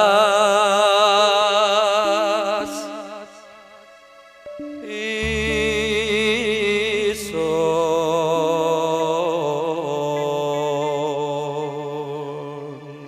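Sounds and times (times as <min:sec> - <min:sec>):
man singing with vibrato: 0:00.0 - 0:03.5, 0:04.8 - 0:13.0
sustained instrumental accompaniment: 0:02.2 - 0:10.0
steady bass note: 0:05.2 - 0:09.0.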